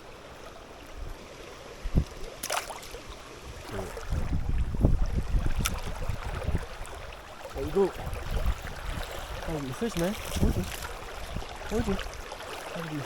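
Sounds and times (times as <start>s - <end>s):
water splashing and knocking: 1.9s - 3.0s, 7.8s - 11.0s.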